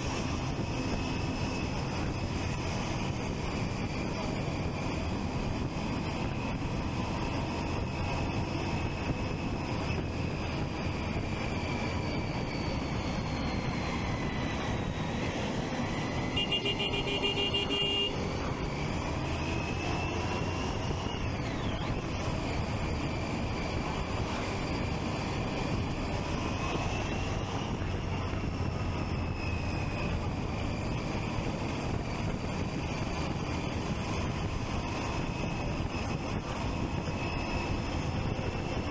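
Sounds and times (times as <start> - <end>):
motorcycle engine running: 14.8 - 19.3
vehicle horn honking: 16.3 - 18.3.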